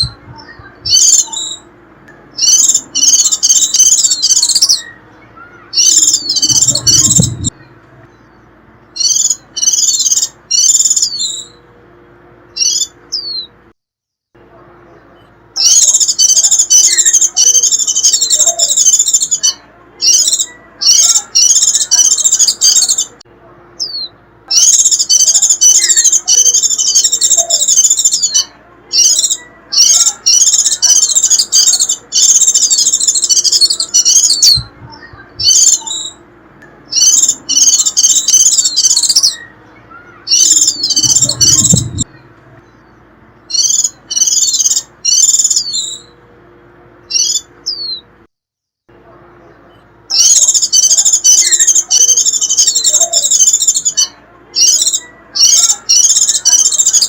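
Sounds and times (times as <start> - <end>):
white-eye bird twittering: 2.3 - 7.6, 8.2 - 11.6, 12.5 - 13.5, 15.6 - 23.2, 23.8 - 36.2, 36.9 - 42.1, 42.8 - 46.1, 47.1 - 48.0, 50.1 - 57.0.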